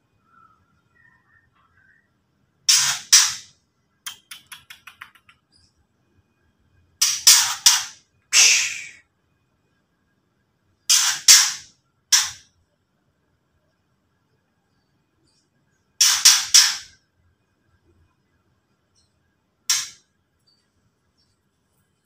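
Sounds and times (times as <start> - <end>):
bird harsh rasping chatter: 2.7 - 3.4, 10.9 - 11.6, 16.0 - 17.0.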